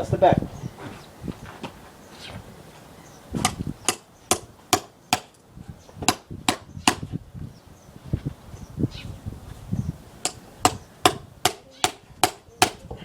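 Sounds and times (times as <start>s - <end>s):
hammer striking chisel into log: 3.4s - 5.4s, 6.0s - 7.1s, 10.2s - 13.0s.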